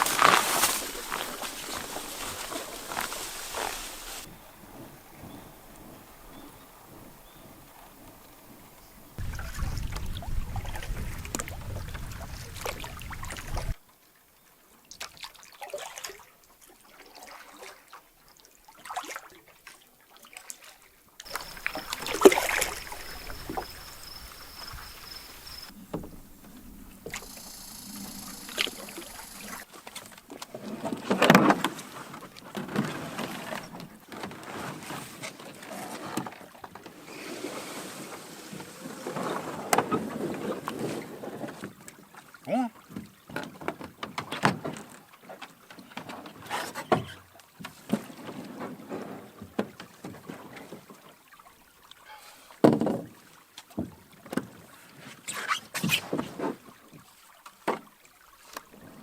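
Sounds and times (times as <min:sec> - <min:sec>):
paddle strokes in water: 0:00.0 - 0:13.8, 0:15.0 - 0:59.0
knocks on canoe: 0:21.3 - 0:27.3, 0:52.6 - 0:53.1.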